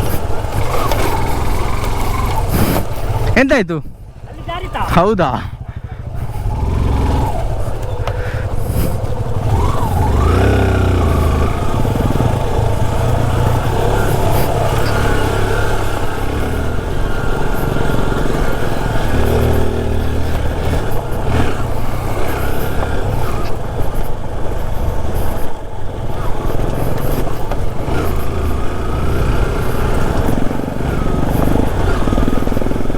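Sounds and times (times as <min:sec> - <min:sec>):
two-stroke motorcycle engine revving: 0:00.0 - 0:03.4, 0:04.0 - 0:32.9.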